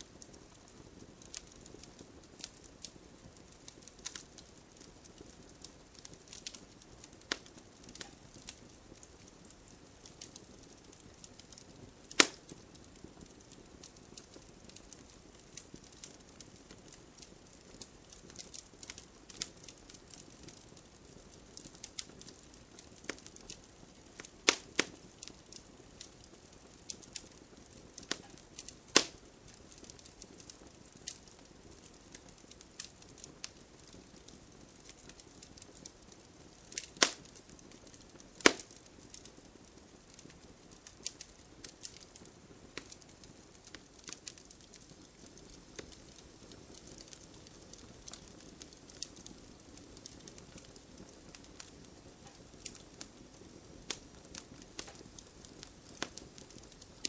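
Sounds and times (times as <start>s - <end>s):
wood fire crackling: 0.0s - 57.0s
loud pops: 38.4s - 38.7s.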